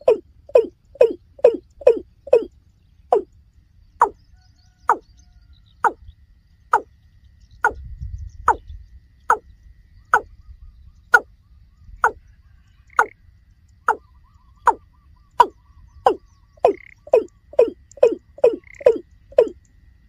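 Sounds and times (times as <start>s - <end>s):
bird calling hollow notes: 0.0s - 3.3s, 4.0s - 4.2s, 4.8s - 5.1s, 5.8s - 6.1s, 7.6s - 11.3s, 12.0s - 12.2s, 13.8s - 19.6s.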